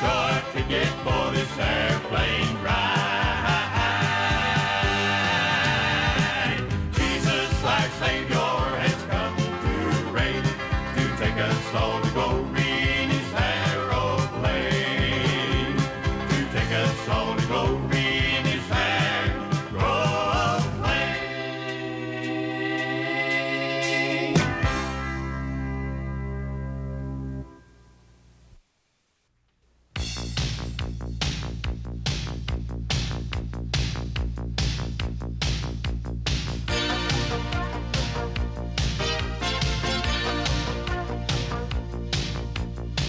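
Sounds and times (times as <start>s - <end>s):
country gospel band music: 0.0s - 26.7s, 36.7s - 43.0s.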